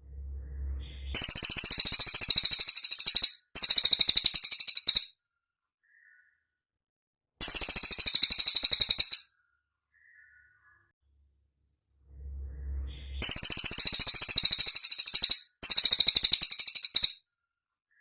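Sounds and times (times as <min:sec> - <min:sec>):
bird singing high-pitched notes: 0:00.3 - 0:05.1, 0:07.4 - 0:09.3, 0:12.4 - 0:17.2.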